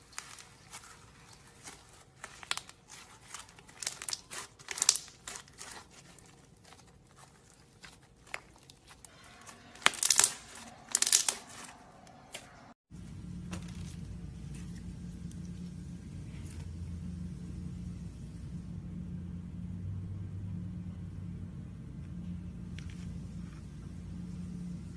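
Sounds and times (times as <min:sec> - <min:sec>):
slime crackling and popping: 0:00.0 - 0:12.4
low hum: 0:09.1 - 0:24.9.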